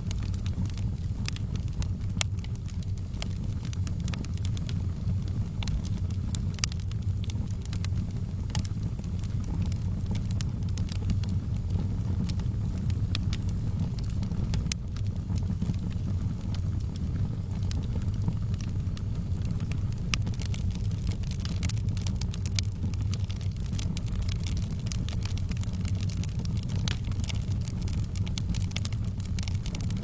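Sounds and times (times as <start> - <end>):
wood fire burning: 0.0 - 30.0.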